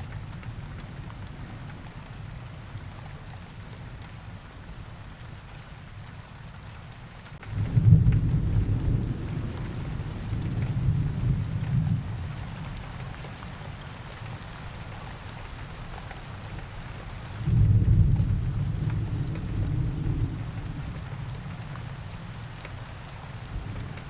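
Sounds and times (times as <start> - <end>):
steady rain: 0.0 - 24.0
thunder rumbling: 7.4 - 13.0, 17.4 - 24.0.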